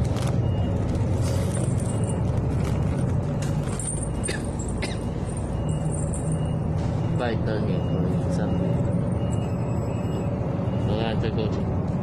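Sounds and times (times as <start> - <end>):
bus cabin rattling: 0.0 - 5.2
bus engine and road rumble: 0.0 - 12.0.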